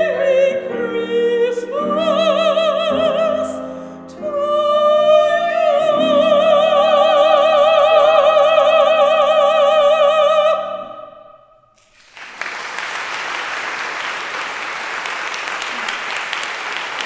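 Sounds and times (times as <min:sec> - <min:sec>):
audience applause: 0:11.8 - 0:17.0.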